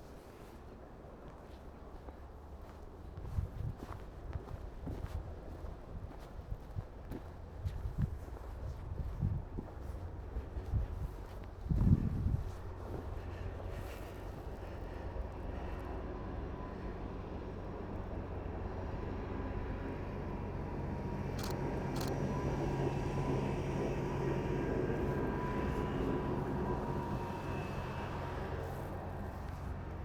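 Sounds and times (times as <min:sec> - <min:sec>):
engine drone with low hum: 0:00.0 - 0:30.0
short clicks: 0:21.4 - 0:22.2.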